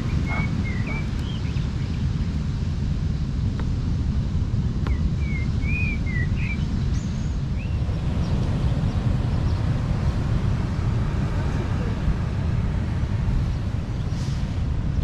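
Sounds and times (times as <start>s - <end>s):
bird chirps: 0.0s - 2.0s, 4.9s - 9.6s
wind rumbling on microphone: 0.0s - 15.0s.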